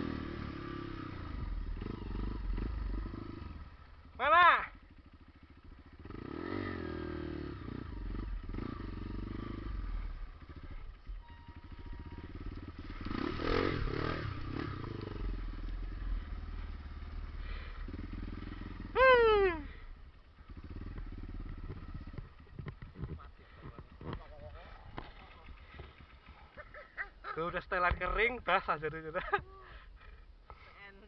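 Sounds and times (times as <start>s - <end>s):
motorcycle engines running: 0.0s - 31.0s
person shouting: 4.2s - 4.8s, 19.0s - 19.8s.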